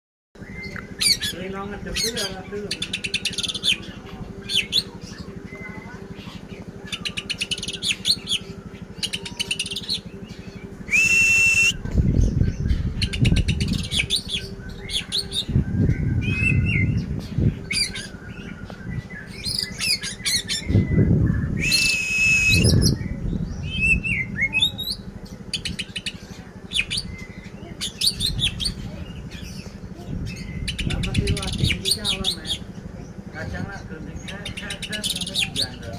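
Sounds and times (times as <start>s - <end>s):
bird singing varied song: 0.4s - 35.9s
low rumbling noise: 0.4s - 35.9s.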